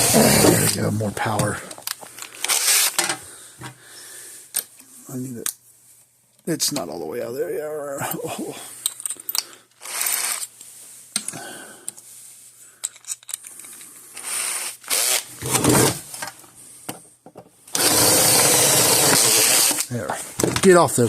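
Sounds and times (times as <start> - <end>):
power drill boring metal rivets: 0.0 - 1.5, 2.4 - 3.2, 8.8 - 10.5, 12.9 - 16.0, 17.7 - 19.9.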